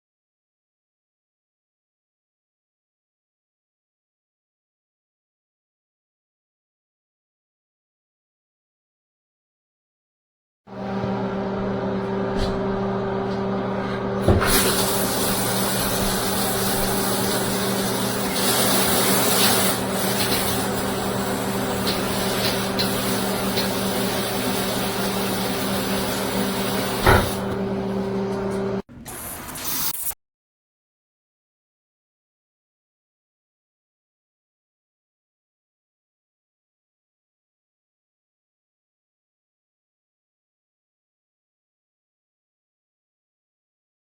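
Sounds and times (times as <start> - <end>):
steady hum: 10.7 - 28.8
water spraying from shower head: 14.2 - 27.6
knock: 27.0 - 27.4.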